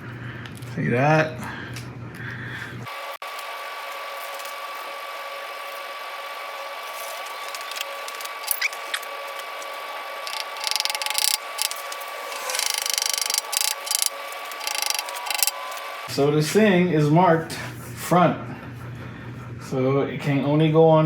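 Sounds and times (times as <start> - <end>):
faint steady hum: 7.0 - 16.0
ratchet-like clicking: 7.6 - 8.7, 10.2 - 15.8.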